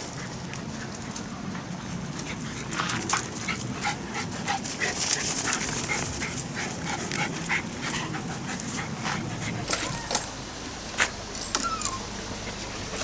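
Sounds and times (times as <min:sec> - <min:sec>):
outdoor background noise: 0:00.0 - 0:13.0
dog whining and yelping: 0:09.6 - 0:10.3, 0:11.4 - 0:12.2.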